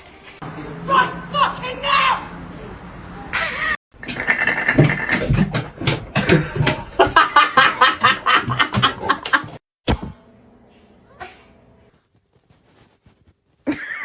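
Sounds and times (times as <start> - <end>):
person laughing hard: 6.2 - 9.6, 13.7 - 14.0.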